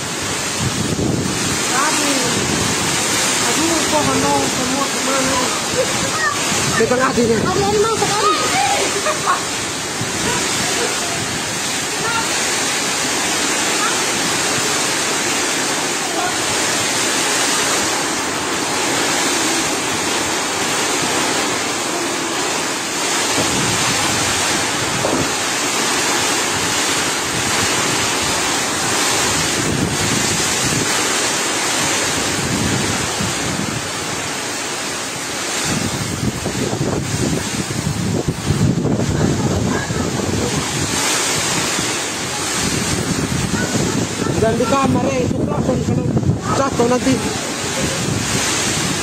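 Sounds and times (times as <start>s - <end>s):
storm wind blowing: 0.0s - 49.0s
wind gusts buffeting microphone: 0.0s - 49.0s.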